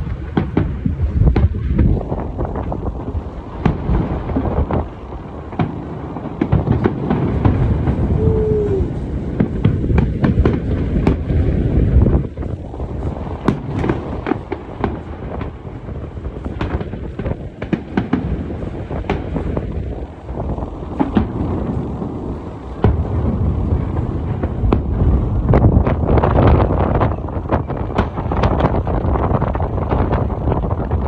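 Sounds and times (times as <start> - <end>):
firework crackling: 0.0 - 31.0
firework shells booming: 0.0 - 31.0
falling firework whistle: 7.4 - 9.8.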